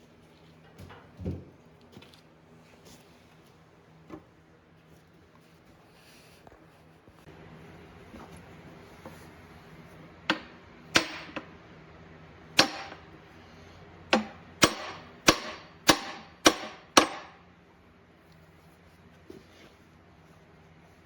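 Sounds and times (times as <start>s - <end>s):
hammer striking metal: 10.3s - 11.5s, 12.6s - 13.0s, 14.1s - 17.4s.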